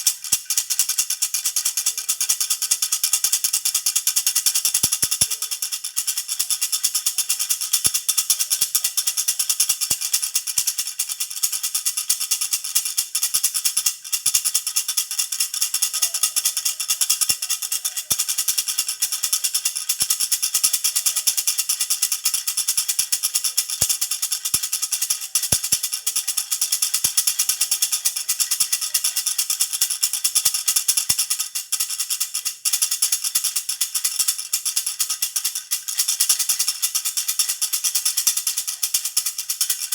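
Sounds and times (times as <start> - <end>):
baby rattle jingling: 0.0 - 39.9.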